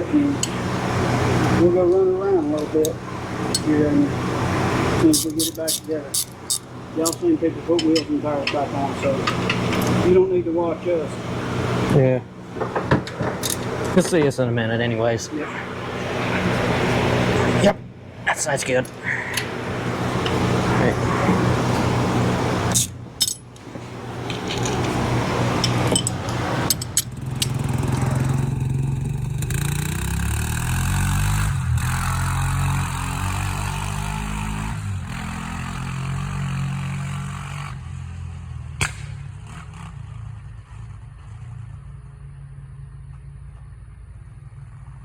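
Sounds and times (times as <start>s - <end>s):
atv engine revving: 0.0s - 38.7s
sharp clicks and knocks: 5.2s - 10.0s, 12.5s - 14.3s, 22.7s - 28.0s.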